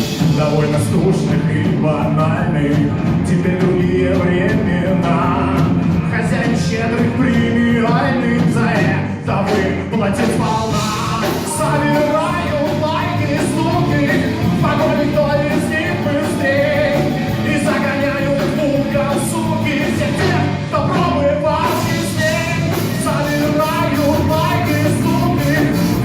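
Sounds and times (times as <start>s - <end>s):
live rock band playing: 0.0s - 26.0s
wavering melodic lead line: 10.6s - 20.7s, 21.7s - 26.0s.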